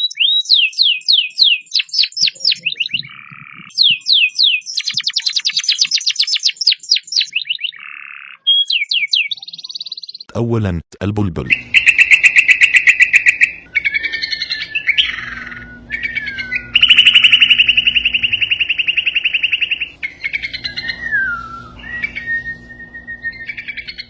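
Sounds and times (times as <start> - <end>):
bulbul singing trills and whistles: 0.0 - 10.3, 11.5 - 24.0.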